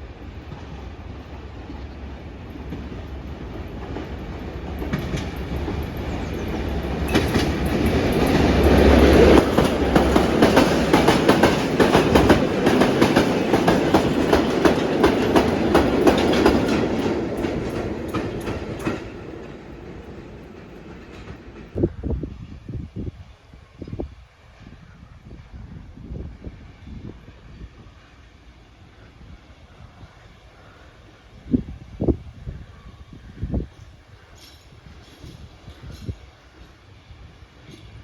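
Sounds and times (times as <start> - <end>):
train engine drone: 0.0 - 38.0
train passing: 0.0 - 38.0
wheels clicking over rail joints: 2.4 - 21.8, 34.3 - 36.7.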